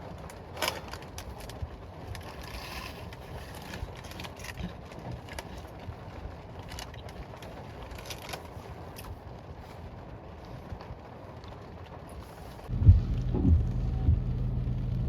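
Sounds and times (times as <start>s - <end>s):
rain drops ticking on a car: 0.0s - 15.0s
steady low rumble: 11.3s - 15.0s.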